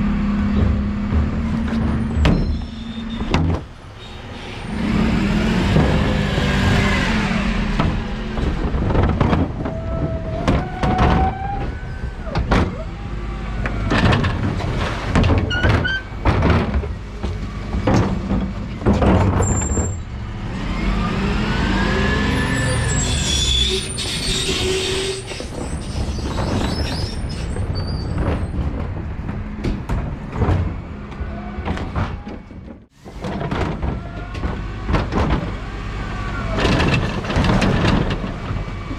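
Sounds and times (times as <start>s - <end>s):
bins clanking and banging: 0.4s - 3.8s, 7.7s - 13.0s, 13.6s - 20.0s, 23.8s - 38.9s.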